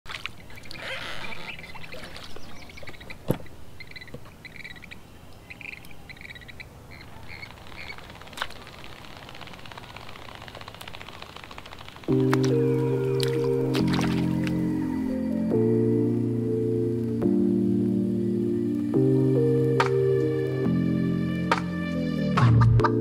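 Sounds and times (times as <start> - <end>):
outdoor background noise: 0.1 - 23.0
bird chirping: 0.2 - 15.2
sharp clicks: 7.4 - 12.6.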